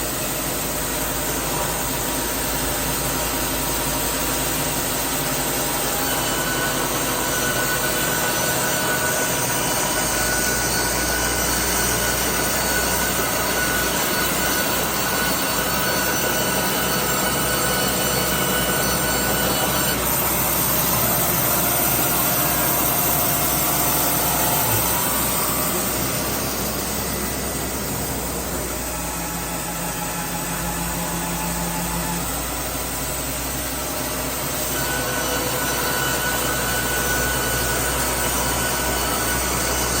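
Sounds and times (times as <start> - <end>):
band sawmill machine drone: 0.0 - 40.0.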